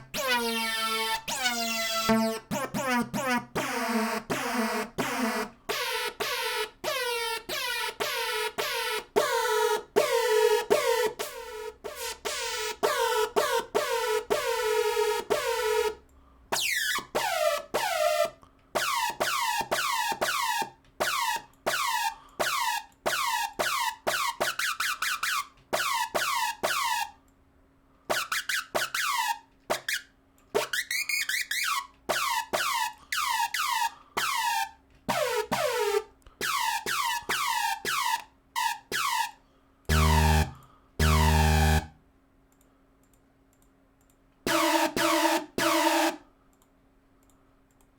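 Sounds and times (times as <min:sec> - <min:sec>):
heavy synth bass notes: 0:00.0 - 0:05.1, 0:39.9 - 0:42.0
synthesizer notes dropping in pitch: 0:00.0 - 0:06.3, 0:39.9 - 0:42.0, 0:44.5 - 0:46.2.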